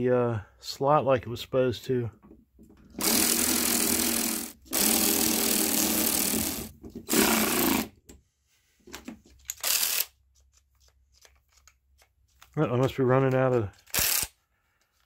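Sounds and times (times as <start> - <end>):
cordless drill motor bursts: 3.0 - 7.9.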